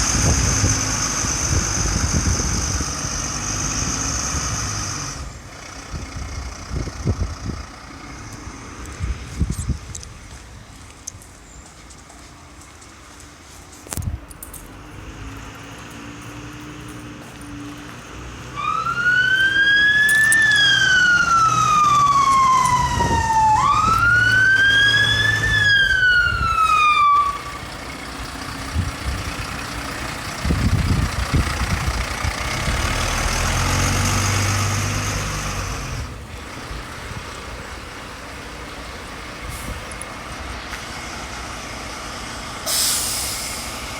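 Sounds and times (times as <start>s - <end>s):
traffic noise: 0.0s - 43.9s
truck engine: 0.0s - 43.9s
fire engine siren wailing: 18.1s - 36.8s.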